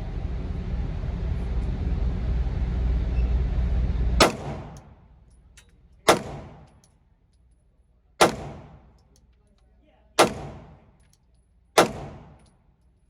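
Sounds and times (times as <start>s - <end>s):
steady low rumble: 0.0s - 7.0s, 8.2s - 9.2s, 10.2s - 11.1s, 11.8s - 12.7s
pistol shots: 4.2s - 4.9s, 6.1s - 6.8s, 8.2s - 9.0s, 10.2s - 10.9s, 11.8s - 12.5s.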